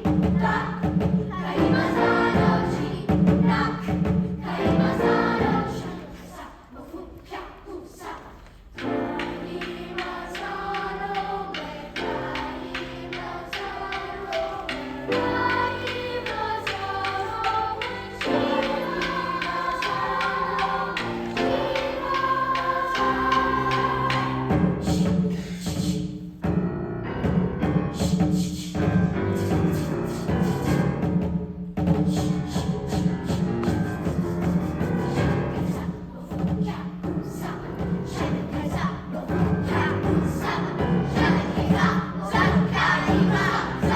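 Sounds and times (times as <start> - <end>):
heavy drum hits: 0.0 - 5.9, 18.5 - 43.9
youth choir singing chords: 0.0 - 26.1, 32.1 - 43.9.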